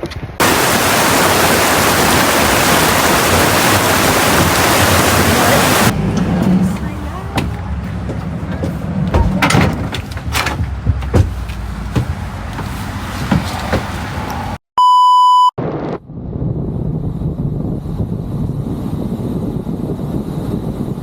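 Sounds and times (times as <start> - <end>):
low rumbling noise: 0.4 - 14.6, 15.6 - 21.0
knocks and clicks: 3.3 - 14.4
electronic beep tone: 14.8 - 15.5.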